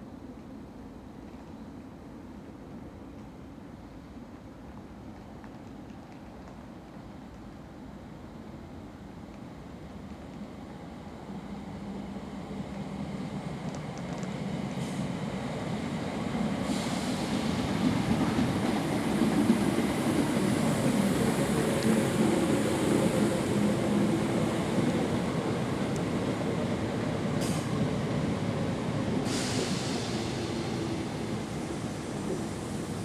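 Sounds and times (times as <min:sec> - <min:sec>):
commuter train rumbling: 0:00.0 - 0:33.0
train brake hiss: 0:14.7 - 0:15.2, 0:16.5 - 0:17.8, 0:27.3 - 0:28.0, 0:29.1 - 0:33.0.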